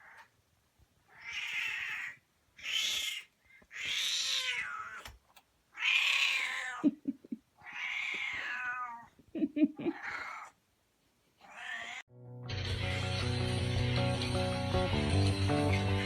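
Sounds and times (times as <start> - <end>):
cat meowing: 1.1 - 5.1, 5.7 - 6.9, 7.6 - 9.1, 9.9 - 10.6, 11.4 - 12.0.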